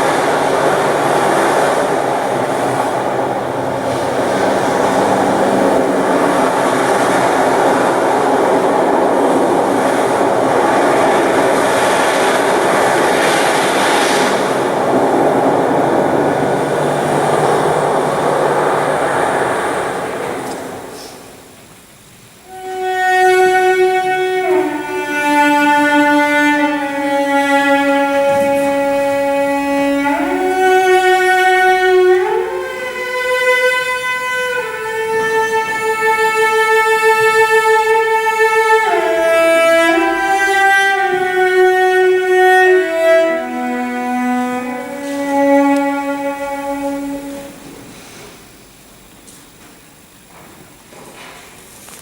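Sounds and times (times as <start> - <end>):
solo violin slow melody: 22.4 - 47.6.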